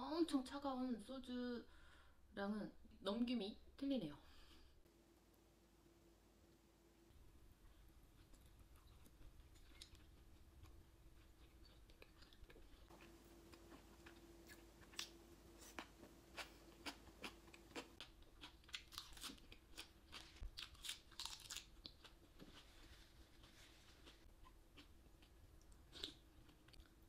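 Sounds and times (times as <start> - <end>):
crunchy chewing: 8.1 - 27.0.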